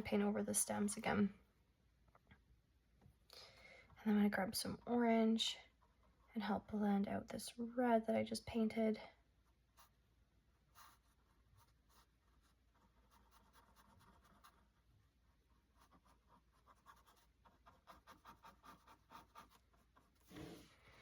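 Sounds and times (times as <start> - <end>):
paintbrush strokes on canvas: 15.5 - 21.0.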